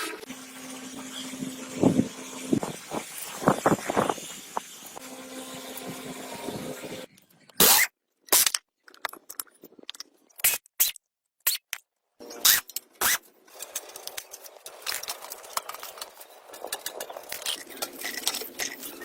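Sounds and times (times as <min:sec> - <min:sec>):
sharp scraping strokes: 0:00.0 - 0:07.9.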